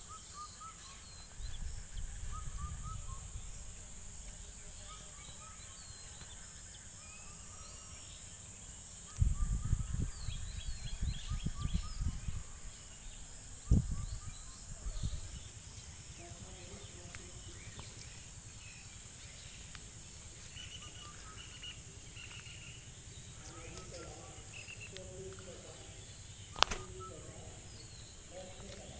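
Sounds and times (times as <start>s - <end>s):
bird chirps: 0.0s - 3.7s, 9.0s - 28.9s
insects droning: 0.0s - 28.9s.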